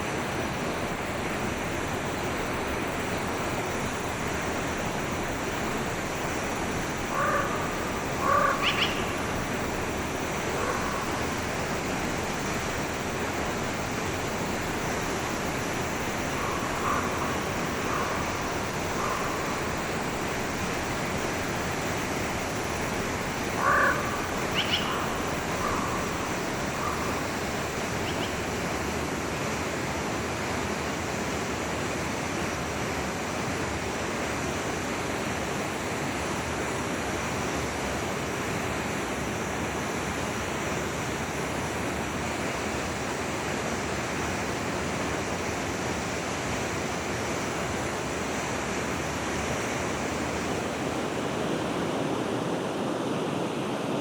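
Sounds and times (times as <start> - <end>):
stream rushing: 0.0 - 54.0
animal calls: 7.1 - 9.2, 23.5 - 28.5.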